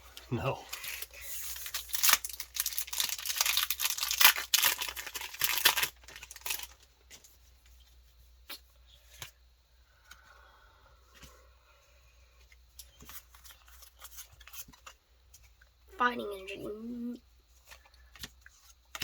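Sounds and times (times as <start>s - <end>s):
foil wrapper tearing and crinkling: 0.6s - 6.8s.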